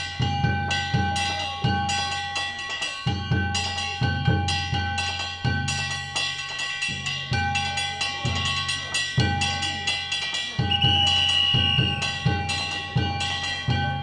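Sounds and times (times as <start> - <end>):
hand gongs ringing: 0.0 - 14.0
taiko drum: 0.0 - 14.0
high whistle-like tone: 10.7 - 12.2.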